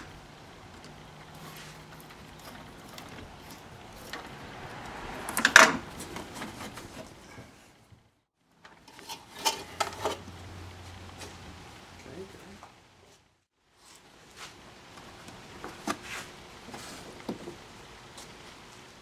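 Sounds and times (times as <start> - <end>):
tools clattering in engine bay: 8.6 - 10.3.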